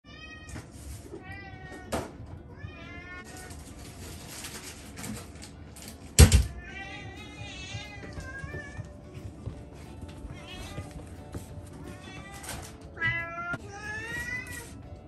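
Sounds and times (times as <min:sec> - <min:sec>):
cat meowing: 0:00.0 - 0:03.6, 0:06.5 - 0:09.0, 0:10.1 - 0:14.8.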